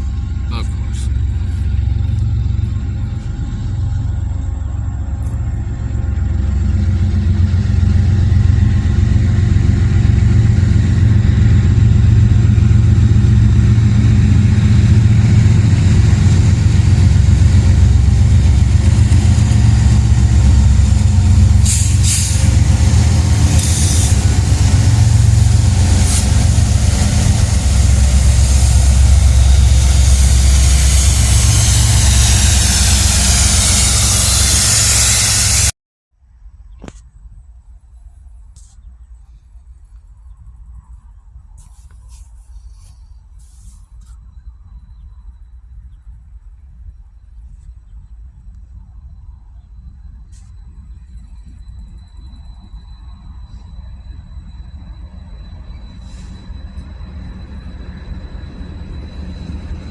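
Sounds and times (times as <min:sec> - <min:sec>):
diesel locomotive engines rumbling: 0:00.0 - 0:35.8, 0:37.9 - 0:59.9
wheel and rail hiss: 0:08.6 - 0:35.7, 0:41.6 - 0:44.3, 0:50.2 - 0:59.9.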